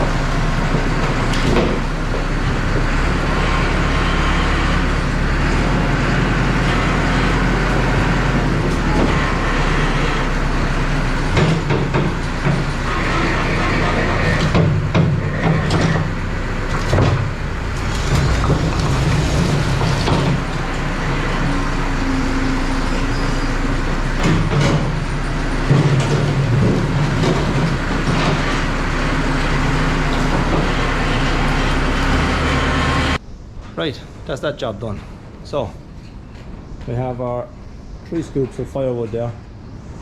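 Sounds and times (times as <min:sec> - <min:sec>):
tractor engine running: 0:00.0 - 0:33.2
logs clattering against bucket: 0:11.2 - 0:12.9, 0:16.7 - 0:20.9.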